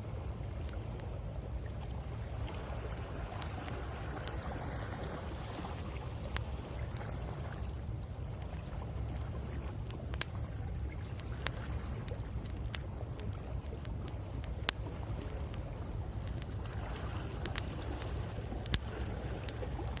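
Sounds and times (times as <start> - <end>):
sea waves washing on shore: 0.0 - 20.0
bonfire crackling with pops: 0.4 - 1.2, 2.8 - 4.6, 6.0 - 7.1, 9.5 - 20.0.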